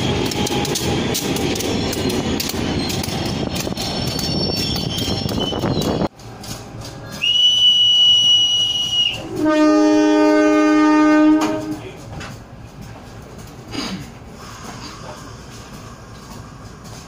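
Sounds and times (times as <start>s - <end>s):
locomotive rumble and wheel clatter: 0.0s - 17.0s
high whistle blast: 7.2s - 9.3s
locomotive horn blast: 7.2s - 11.8s.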